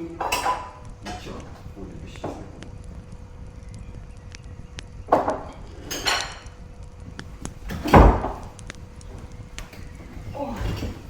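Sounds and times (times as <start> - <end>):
knocks and clatters: 4.3 - 11.0
heavy thud: 7.6 - 8.7.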